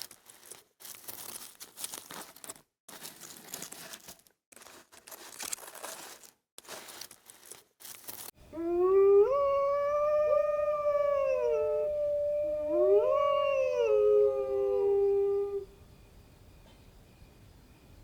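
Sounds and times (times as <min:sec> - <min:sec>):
dog howling: 0:08.5 - 0:15.7.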